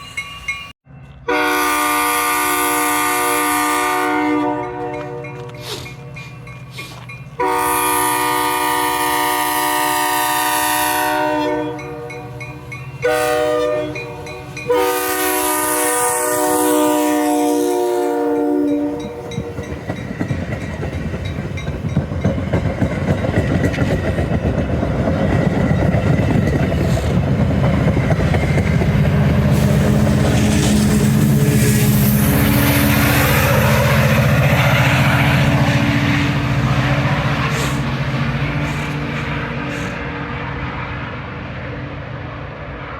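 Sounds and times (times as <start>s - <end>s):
diesel locomotive engine drone: 0.0s - 42.9s
locomotive air horn blasts: 1.2s - 5.9s, 7.4s - 12.3s, 13.0s - 19.6s.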